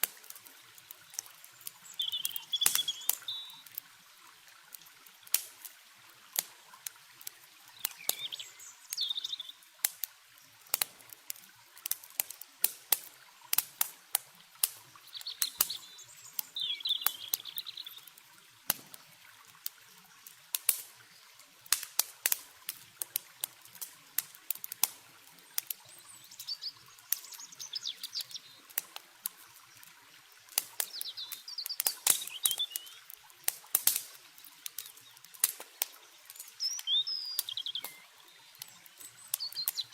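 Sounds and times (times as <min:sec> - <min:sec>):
campfire crackling and popping: 0:00.0 - 0:39.9
faint steady water noise: 0:00.0 - 0:39.9
songbird warbling: 0:01.8 - 0:03.7, 0:07.8 - 0:09.6, 0:15.0 - 0:18.1, 0:25.9 - 0:28.6, 0:30.8 - 0:33.1, 0:36.1 - 0:39.9.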